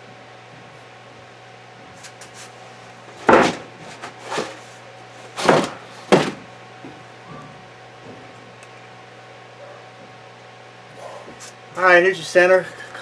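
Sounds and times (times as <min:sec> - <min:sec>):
metal parts clunking: 0:03.1 - 0:06.5.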